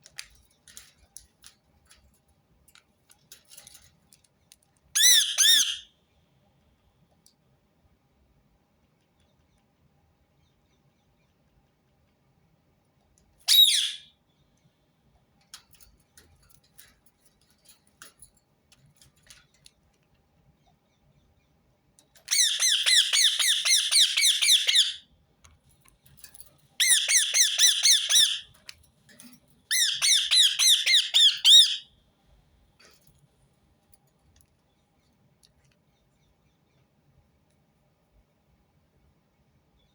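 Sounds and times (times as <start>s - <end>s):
parakeet squawking: 5.0s - 5.8s, 13.5s - 14.1s, 22.3s - 25.0s, 26.8s - 28.5s, 29.7s - 31.8s.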